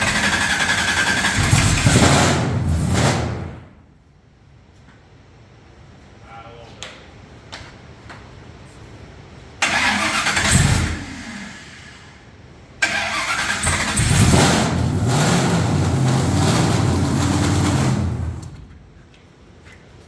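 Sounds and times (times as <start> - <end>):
engine starting and running: 0.0 - 3.8, 9.6 - 19.0.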